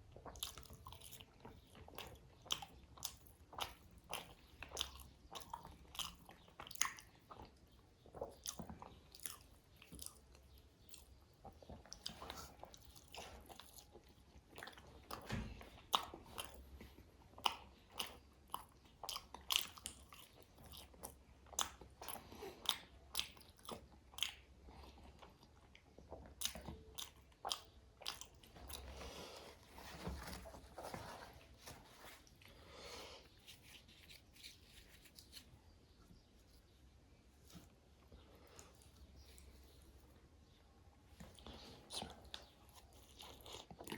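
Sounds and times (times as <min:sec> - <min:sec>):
person chewing crunchy food: 0:00.0 - 0:29.8, 0:41.1 - 0:43.9
soft wet chewing: 0:00.0 - 0:43.9.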